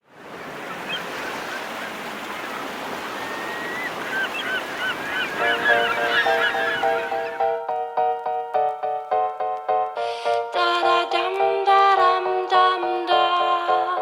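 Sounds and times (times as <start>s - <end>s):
sea surf: 0.0s - 7.6s
birds calling: 0.3s - 7.6s.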